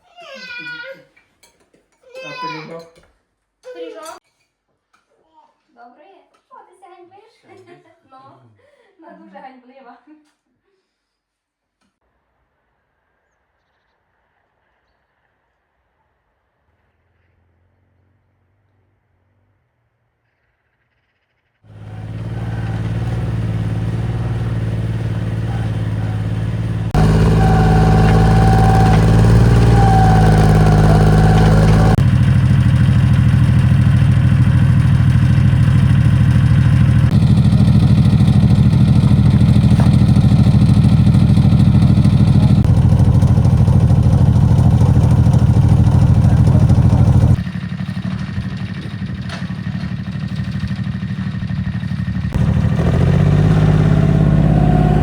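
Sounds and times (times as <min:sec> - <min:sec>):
diesel engine running: 0:21.7 - 0:55.0.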